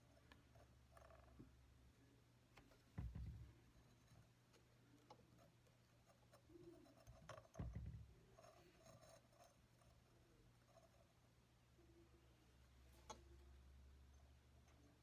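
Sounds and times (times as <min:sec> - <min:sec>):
soft knock: 0:02.9 - 0:03.6, 0:07.5 - 0:08.2.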